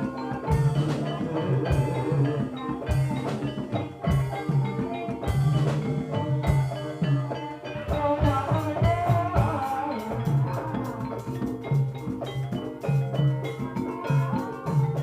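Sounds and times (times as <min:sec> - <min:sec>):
hand drum strokes: 0:00.0 - 0:15.0
metallophones ringing: 0:00.0 - 0:15.0
wavering melody line: 0:00.0 - 0:15.0.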